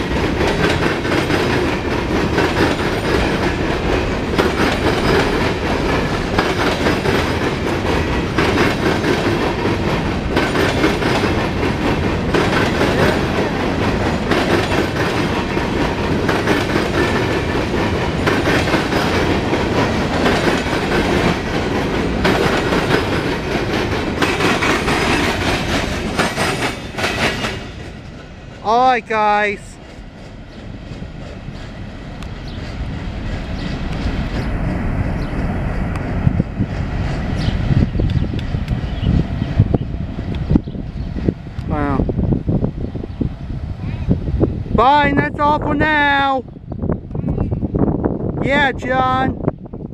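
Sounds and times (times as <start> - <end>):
train wheels clacking over rail joints: 0.0 - 28.3.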